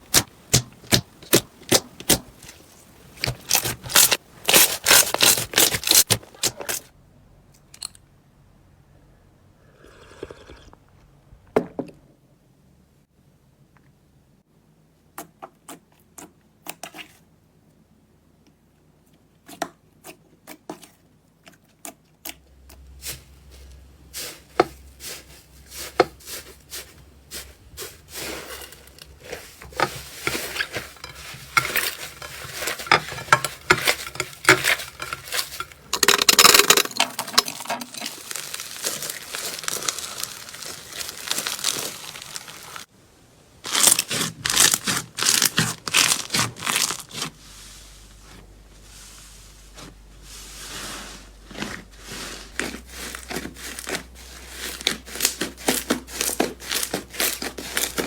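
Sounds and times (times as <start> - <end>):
slime clicking and crackling: 0.0 - 6.9, 37.9 - 42.9, 43.7 - 47.2.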